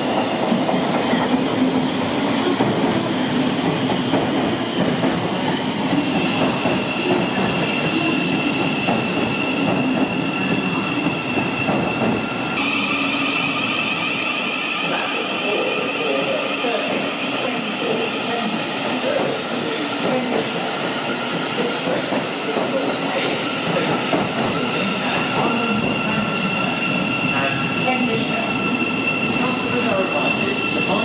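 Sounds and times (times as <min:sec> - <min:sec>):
electric train rumbling on rails: 0:00.0 - 0:31.0
train wheels squealing: 0:00.0 - 0:31.0.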